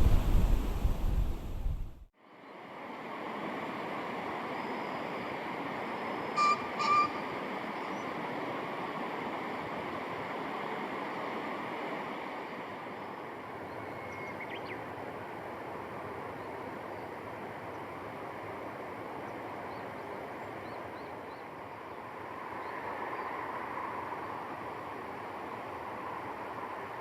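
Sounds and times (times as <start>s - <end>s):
rushing outdoor noise: 0.0s - 27.0s
bird calling: 6.3s - 8.2s.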